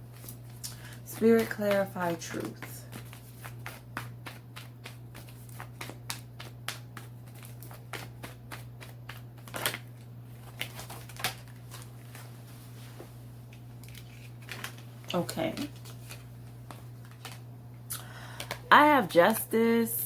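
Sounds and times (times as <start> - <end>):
low steady hum: 0.0 - 20.0
cards being shuffled: 0.1 - 12.4, 13.5 - 17.5.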